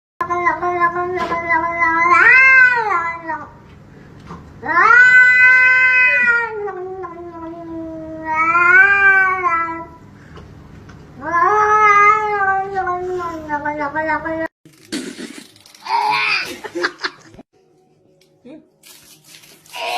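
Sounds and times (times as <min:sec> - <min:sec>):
cat yowling: 0:01.6 - 0:03.4, 0:04.6 - 0:07.2, 0:08.1 - 0:09.9, 0:11.2 - 0:13.0.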